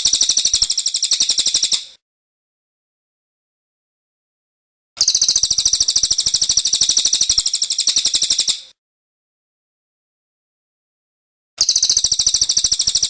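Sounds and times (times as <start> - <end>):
songbird chirping rapidly: 0.0 - 1.9, 5.0 - 8.7, 11.6 - 13.0.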